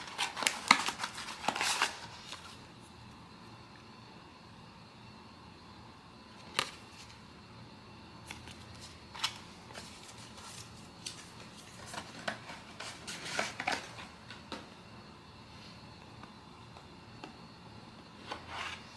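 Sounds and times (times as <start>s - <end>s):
cardboard and paper crinkling: 0.0s - 2.7s, 8.3s - 14.1s.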